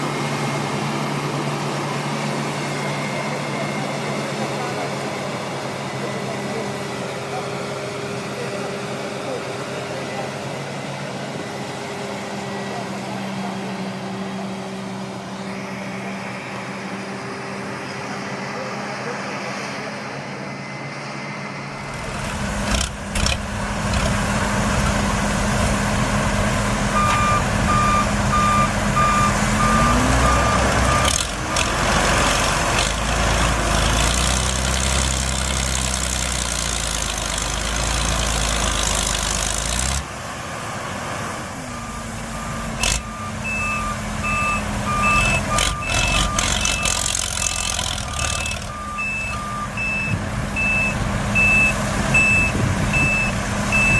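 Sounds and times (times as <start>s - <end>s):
heavy vehicle engine revving: 21.7s - 53.9s
reversing alarm beeping: 27.0s - 31.7s, 41.7s - 47.2s, 48.1s - 53.9s.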